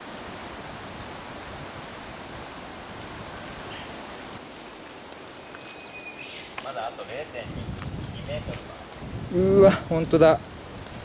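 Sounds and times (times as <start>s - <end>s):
water rushing: 0.0s - 5.4s.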